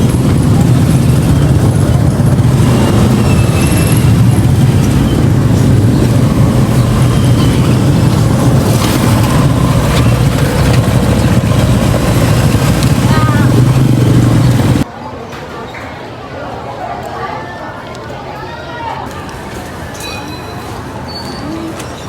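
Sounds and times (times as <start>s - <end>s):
engine and road rumble: 0.0s - 14.9s.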